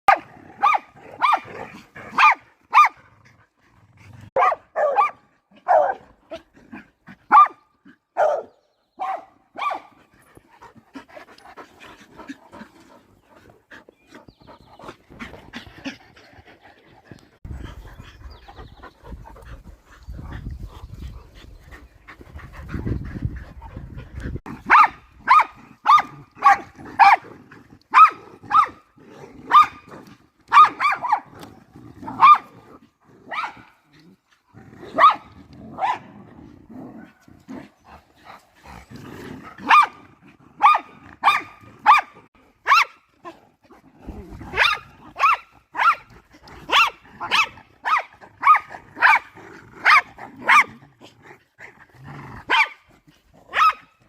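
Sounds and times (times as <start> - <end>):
dogs barking: 0.1 - 3.0, 4.3 - 6.2, 7.2 - 10.0, 24.5 - 27.3, 27.9 - 28.9, 29.5 - 29.9, 30.5 - 31.4, 32.1 - 32.5, 33.3 - 33.8, 34.9 - 36.2, 39.6 - 40.0, 40.6 - 43.1, 44.5 - 50.8, 52.4 - 52.8, 53.5 - 54.0.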